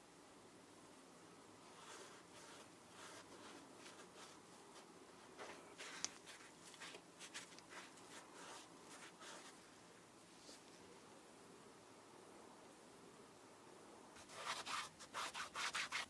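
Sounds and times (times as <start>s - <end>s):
hands scraping and rustling: 1.7s - 9.6s.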